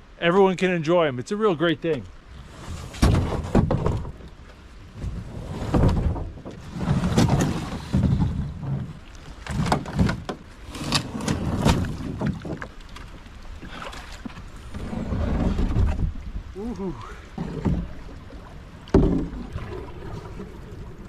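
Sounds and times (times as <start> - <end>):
paddle splashing in water: 1.9 - 21.0
knocks on canoe hull: 18.9 - 19.4.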